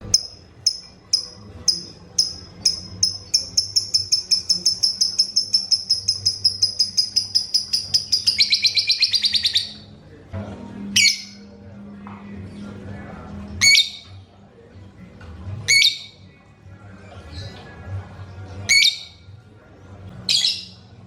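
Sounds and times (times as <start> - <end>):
lovebird chirping and chattering: 0.0 - 9.8.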